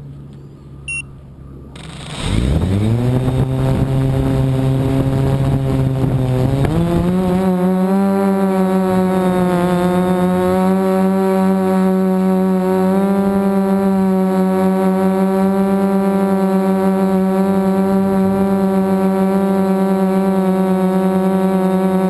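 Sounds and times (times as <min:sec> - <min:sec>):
drone propellers humming: 0:00.0 - 0:22.0.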